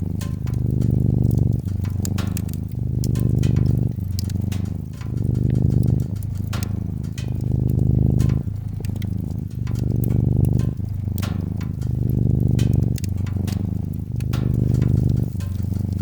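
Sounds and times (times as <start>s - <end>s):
cat purring: 0.0s - 16.0s
wood fire crackling: 0.0s - 16.0s.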